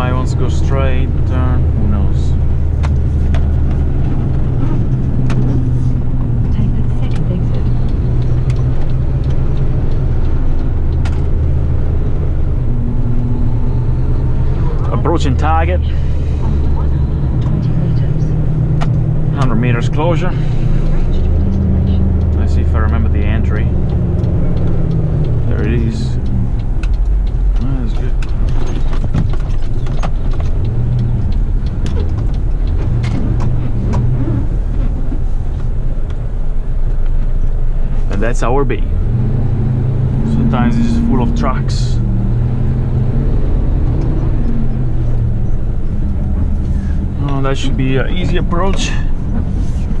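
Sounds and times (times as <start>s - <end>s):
truck diesel engine drone: 0.0s - 50.0s
clicks and rattles: 26.2s - 34.2s.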